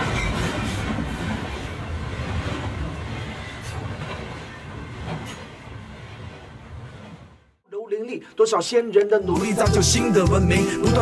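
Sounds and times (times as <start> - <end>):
freight train rumbling on rails: 0.0 - 7.6.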